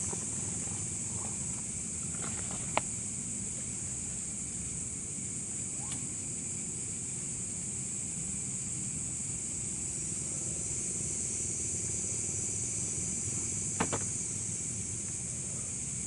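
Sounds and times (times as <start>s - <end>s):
constant high hiss: 0.0s - 16.0s.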